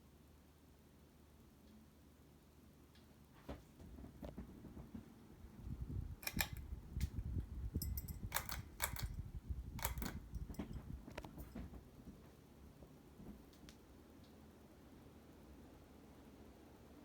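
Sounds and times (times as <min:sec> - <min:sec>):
ceiling fan air rumble: 0:00.0 - 0:17.0
fan clicks and ticks: 0:03.9 - 0:12.3, 0:13.2 - 0:14.5.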